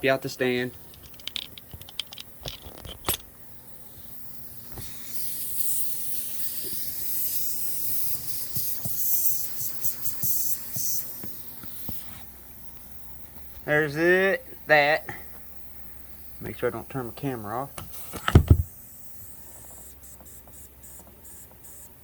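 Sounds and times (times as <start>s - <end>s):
handling clicks and knocks: 0.7s - 3.3s
air hissing from tire leak: 4.1s - 12.3s, 17.8s - 18.4s.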